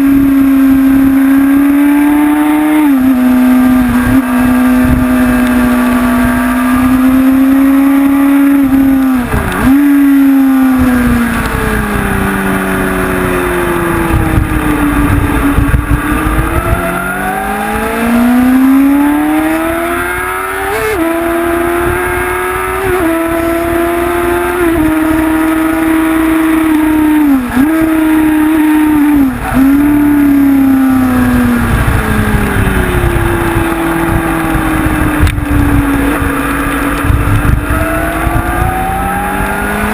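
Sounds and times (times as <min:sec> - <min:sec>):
gear changes: 0:00.0 - 0:39.9
motorcycle engine accelerating: 0:00.0 - 0:39.9
wind rumble on microphone: 0:00.0 - 0:39.9.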